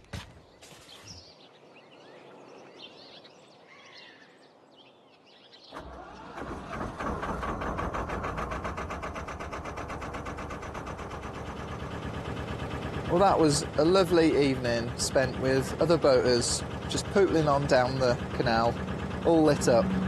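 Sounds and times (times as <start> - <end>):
faint birdsong: 0.0 - 6.5, 10.8 - 20.0
boat engine chugging: 5.8 - 20.0.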